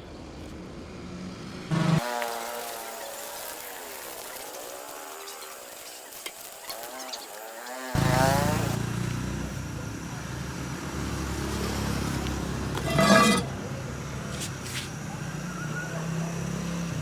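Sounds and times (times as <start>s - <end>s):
motor rumbling: 11.3s - 15.2s.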